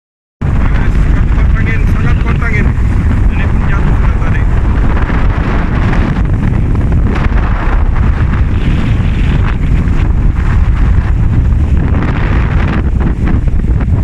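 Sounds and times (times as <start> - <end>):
wind buffeting microphone: 0.4 - 14.0.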